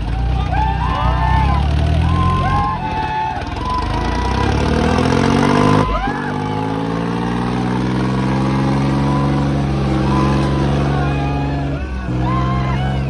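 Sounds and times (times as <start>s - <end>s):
tractor engine working hard: 0.0s - 13.0s.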